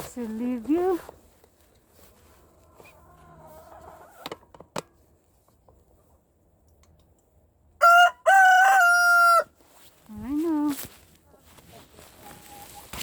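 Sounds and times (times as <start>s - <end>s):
rooster crowing: 7.8s - 9.5s.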